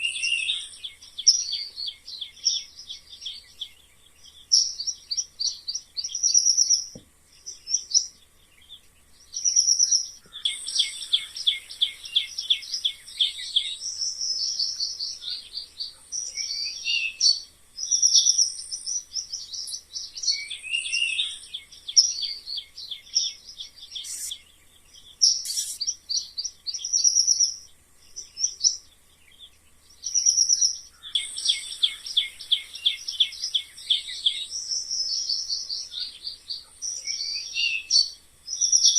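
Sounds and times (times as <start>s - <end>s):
mice squeaking: 24.0s - 24.4s, 25.4s - 25.9s.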